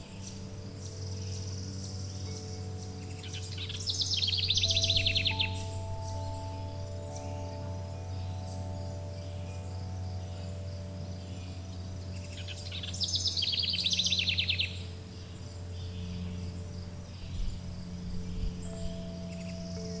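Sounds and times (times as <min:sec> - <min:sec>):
high pulsing chirr: 0:00.0 - 0:20.0
songbird trilling: 0:00.0 - 0:20.0
wind chimes ringing: 0:00.0 - 0:20.0.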